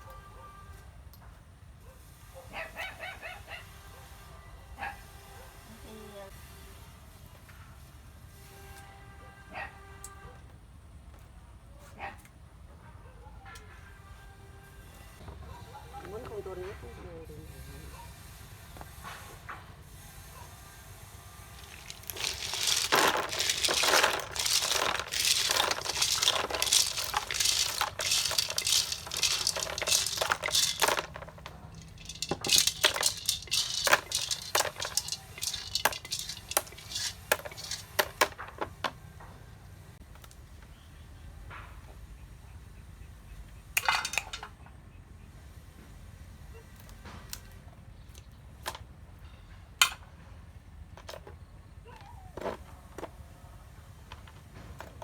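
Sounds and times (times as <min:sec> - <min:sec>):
small hard objects clinking: 0:21.5 - 0:39.0, 0:43.8 - 0:44.4.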